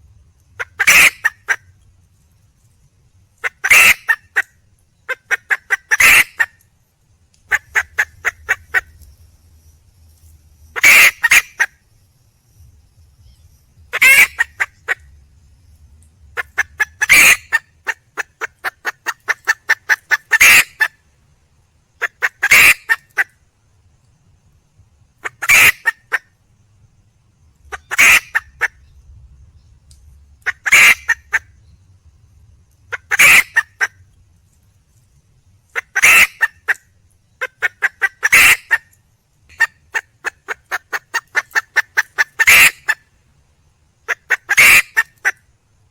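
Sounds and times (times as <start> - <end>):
rapid clucks: 5.1 - 6.6, 16.4 - 21.0, 37.4 - 43.0.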